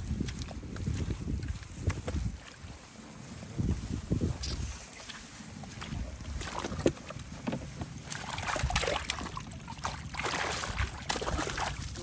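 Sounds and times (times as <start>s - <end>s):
water splashing and sloshing: 0.0s - 12.0s
wind rumble on microphone: 0.0s - 12.0s.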